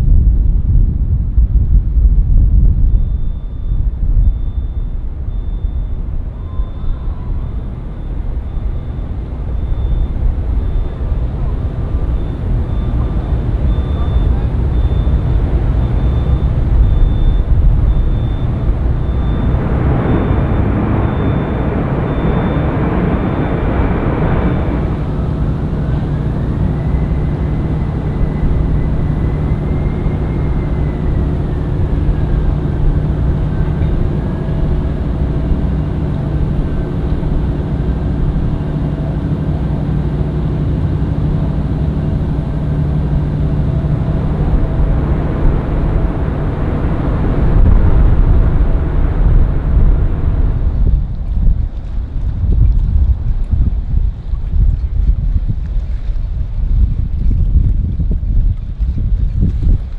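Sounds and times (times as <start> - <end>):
jet airliner engines running: 2.6 - 59.9
whining engine tone: 3.0 - 50.9.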